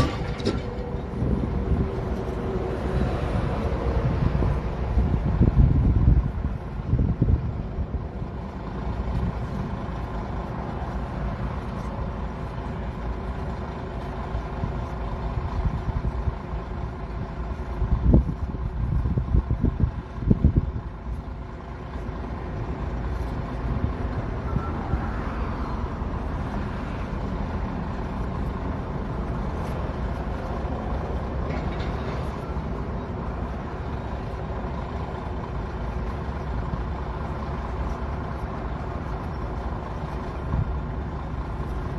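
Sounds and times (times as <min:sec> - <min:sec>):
large diesel engine running: 0:00.0 - 0:41.9.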